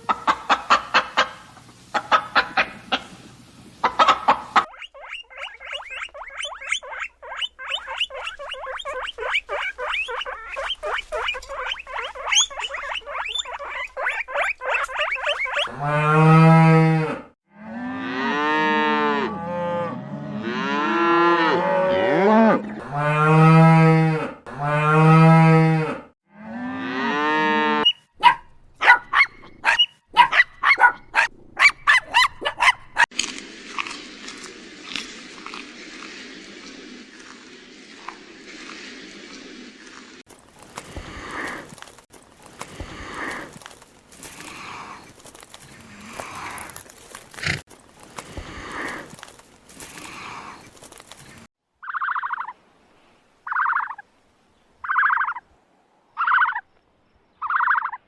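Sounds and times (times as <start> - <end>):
rapid high chirping: 4.6 - 15.7.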